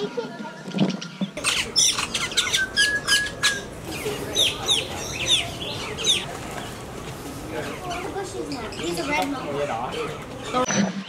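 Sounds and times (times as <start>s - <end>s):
birds chirping: 1.3s - 10.7s
held bird whistle: 1.4s - 6.3s.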